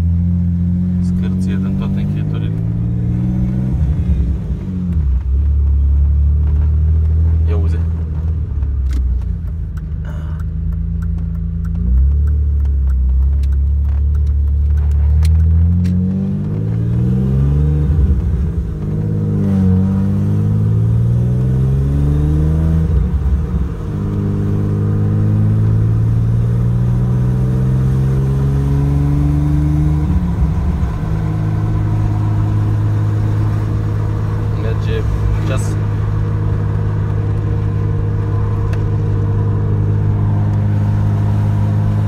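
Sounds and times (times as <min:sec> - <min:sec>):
car engine accelerating: 0:00.0 - 0:42.0
sharp clicks: 0:08.2 - 0:16.8.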